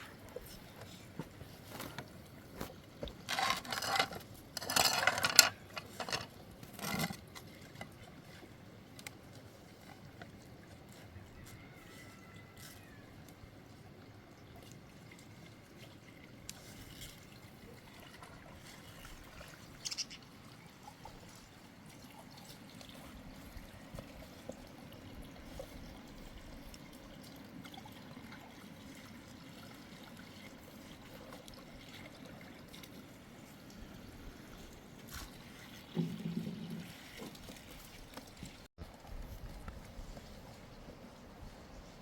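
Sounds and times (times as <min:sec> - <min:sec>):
water trickling: 0:11.6 - 0:40.7.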